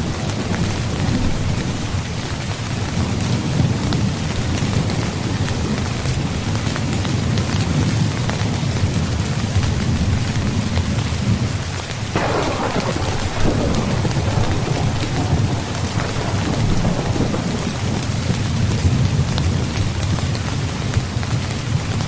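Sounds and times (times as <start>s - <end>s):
rain drumming on a tent: 0.0s - 22.0s
thunder rolling: 12.1s - 20.4s.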